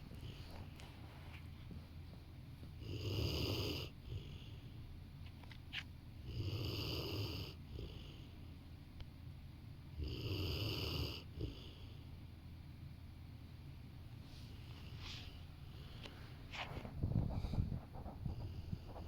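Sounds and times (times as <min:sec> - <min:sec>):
dog snoring: 0:02.8 - 0:04.7, 0:06.2 - 0:08.4, 0:09.9 - 0:12.0
soft breath: 0:14.2 - 0:19.0.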